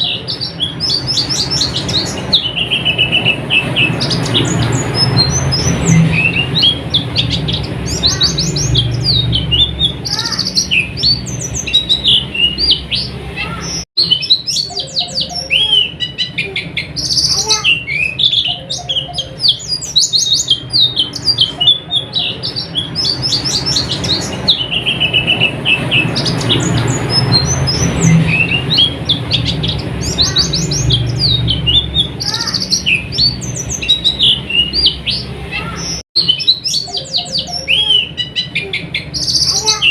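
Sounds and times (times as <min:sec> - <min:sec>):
birds twittering: 0:00.0 - 0:39.9.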